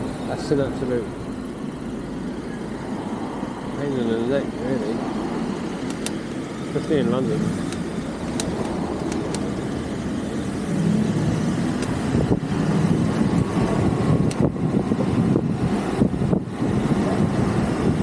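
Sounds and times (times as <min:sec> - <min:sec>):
city traffic rumble: 0:00.0 - 0:18.0
wind noise: 0:07.1 - 0:18.0.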